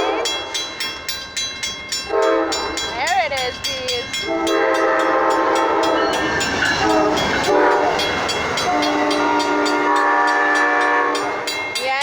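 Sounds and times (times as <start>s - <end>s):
train wheels clattering: 0.0s - 12.0s
train air horn: 2.1s - 2.6s, 4.2s - 6.0s, 6.8s - 8.1s, 8.7s - 11.5s.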